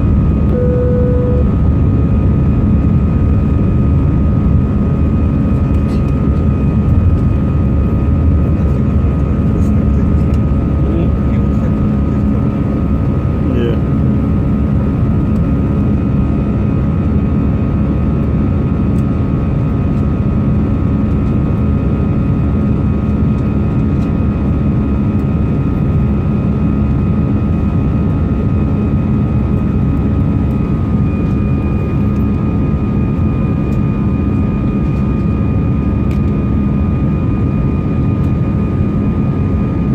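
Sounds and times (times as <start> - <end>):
jet engines roaring with whine: 0.0 - 39.9.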